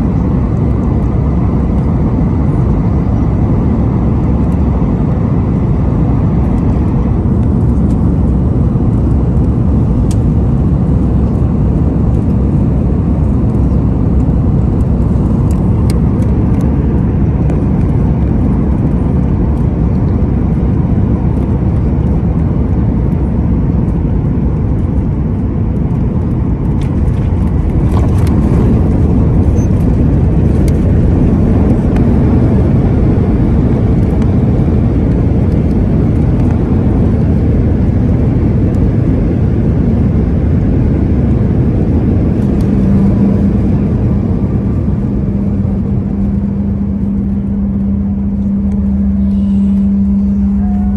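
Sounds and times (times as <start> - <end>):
jet airliner rumble: 0.0 - 50.9.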